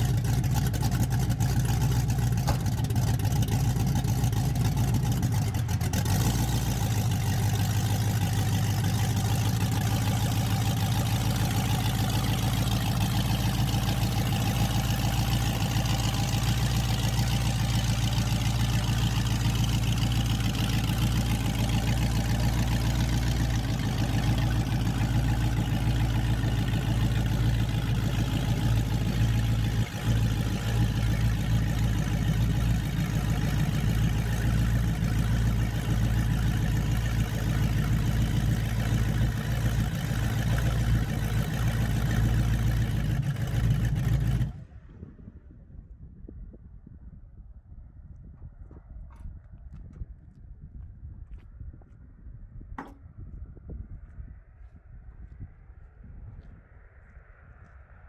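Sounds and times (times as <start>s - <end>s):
vehicle engine running: 0.0s - 45.3s.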